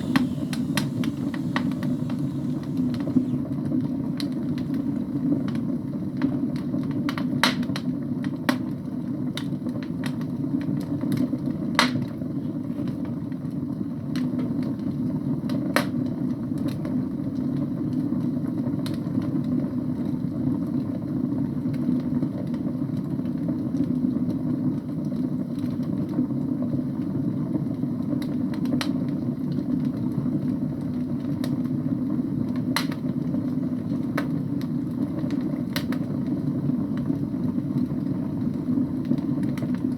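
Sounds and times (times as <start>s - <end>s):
logs crackling and popping: 0.0s - 3.4s
fire burning in fireplace: 0.0s - 8.4s, 21.7s - 39.9s.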